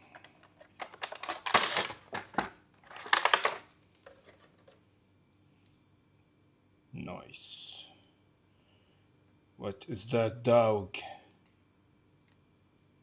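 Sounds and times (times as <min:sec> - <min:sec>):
plastic and cardboard crinkling: 0:00.0 - 0:04.8.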